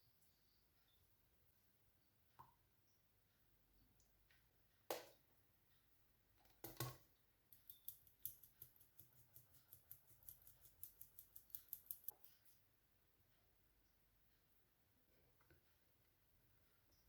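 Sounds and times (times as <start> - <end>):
light utensil clicks: 7.5 - 12.2.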